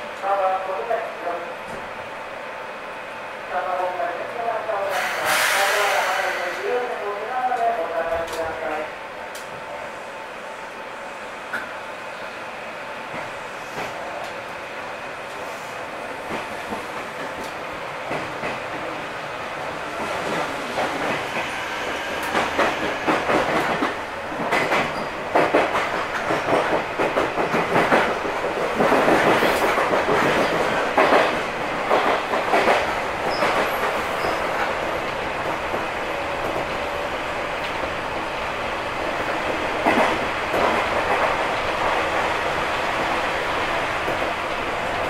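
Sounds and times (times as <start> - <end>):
train wheels clattering over rail joints: 20.2 - 34.7.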